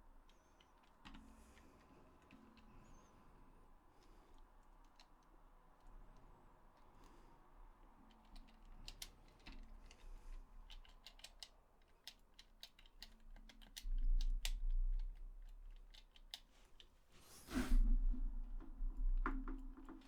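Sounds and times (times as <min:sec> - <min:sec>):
short rustle: 0:16.6 - 0:18.2.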